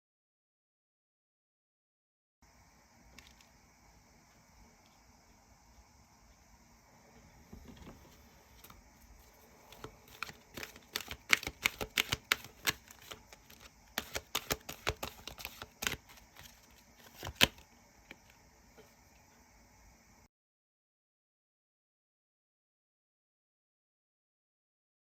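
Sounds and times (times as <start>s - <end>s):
cards clicking and tapping: 9.6s - 18.3s.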